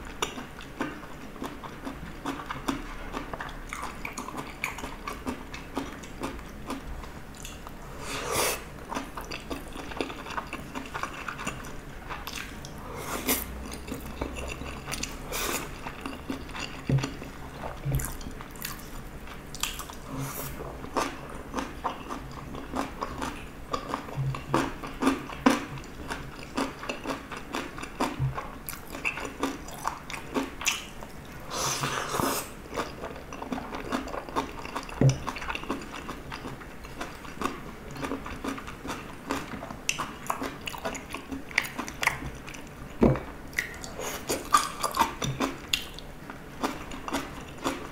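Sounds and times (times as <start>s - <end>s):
person chewing and biting food: 7.4s - 30.9s.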